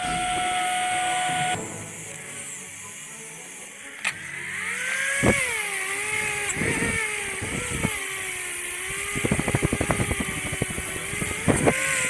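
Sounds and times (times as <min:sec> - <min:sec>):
click: 0:04.0 - 0:04.2
motorcycle engine revving: 0:04.6 - 0:12.0.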